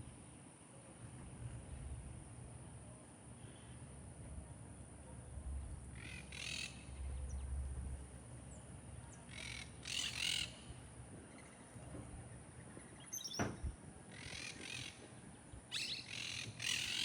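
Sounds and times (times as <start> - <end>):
harsh raspy bird calls: 6.0 - 7.0, 9.3 - 10.7, 14.1 - 15.0, 15.7 - 17.0.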